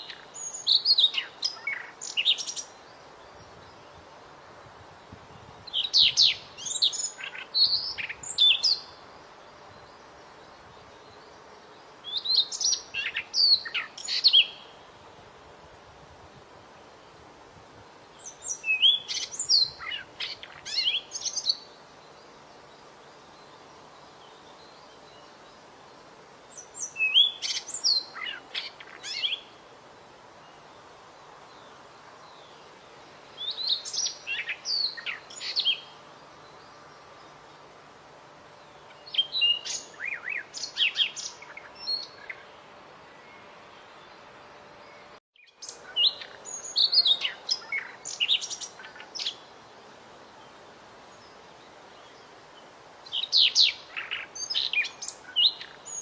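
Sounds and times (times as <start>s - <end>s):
songbird whistles and chirps: 0.0s - 4.0s, 5.5s - 9.0s, 12.0s - 14.8s, 18.1s - 25.6s, 26.5s - 29.5s, 33.3s - 37.3s, 38.8s - 42.5s, 44.8s - 49.4s, 53.0s - 56.0s
faint steady hiss: 0.0s - 56.0s.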